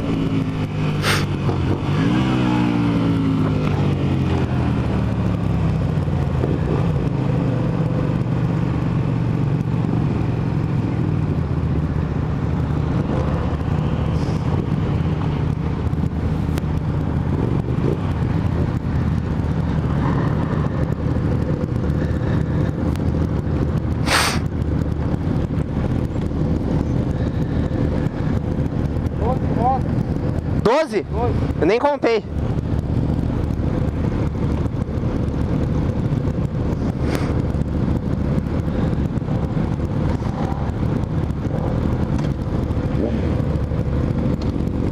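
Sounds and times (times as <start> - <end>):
wind rush on microphone: 0.0 - 31.6, 32.2 - 44.9
motorcycle engine running: 0.0 - 44.9.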